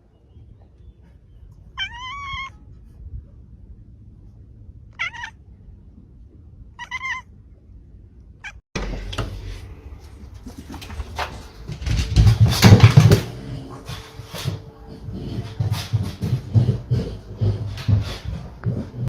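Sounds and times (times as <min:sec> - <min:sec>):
cat meowing: 0:01.8 - 0:02.6, 0:05.0 - 0:05.4, 0:06.8 - 0:07.3.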